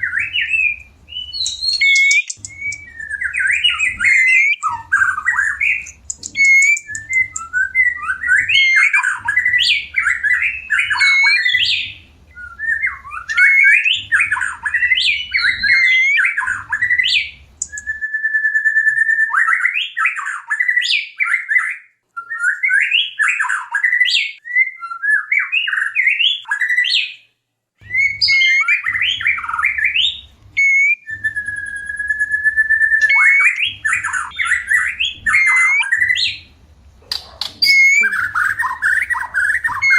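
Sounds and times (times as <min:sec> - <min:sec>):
songbird singing: 0:00.0 - 0:27.2, 0:27.8 - 0:39.9
long steady whistled note: 0:30.6 - 0:33.6.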